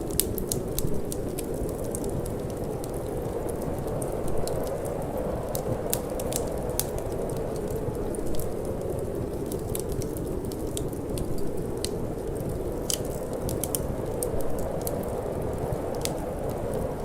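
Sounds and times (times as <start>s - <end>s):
fire crackling and popping: 0.0s - 17.0s
low rumble of flame: 0.0s - 17.0s
wind: 0.0s - 17.0s.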